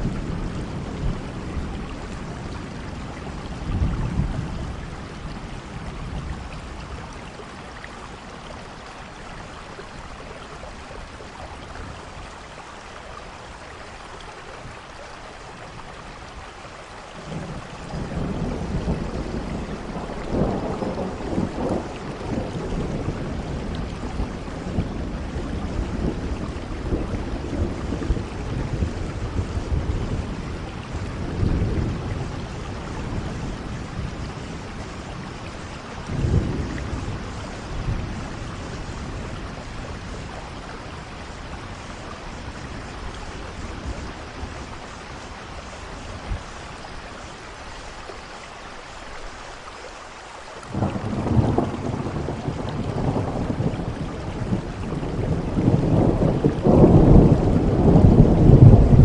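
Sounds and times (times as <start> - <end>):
thunder rumbling: 0.0 - 7.8, 17.2 - 47.0, 50.7 - 59.0
rain hissing: 0.0 - 59.0.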